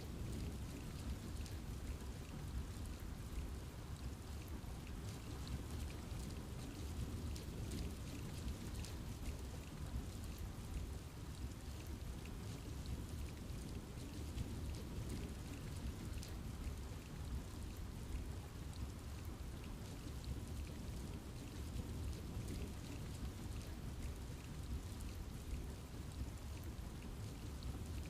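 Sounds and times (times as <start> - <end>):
raindrops ticking on leaves: 0.0 - 28.0.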